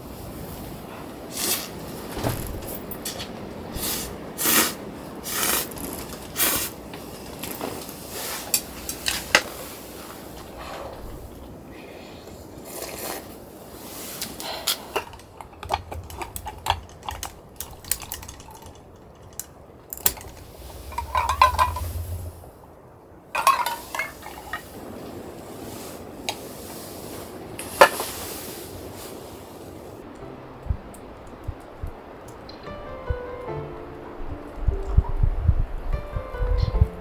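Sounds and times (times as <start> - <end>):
dishes and utensils clinking: 7.4 - 11.3, 14.2 - 22.4, 23.4 - 24.8.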